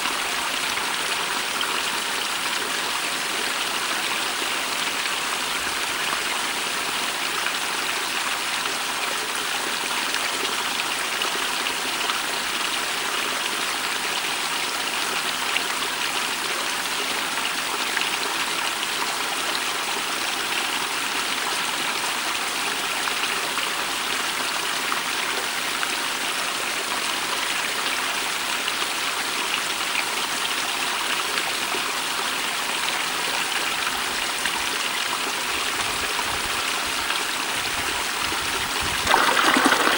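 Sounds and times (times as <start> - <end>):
stream rushing water: 30.8 - 39.9.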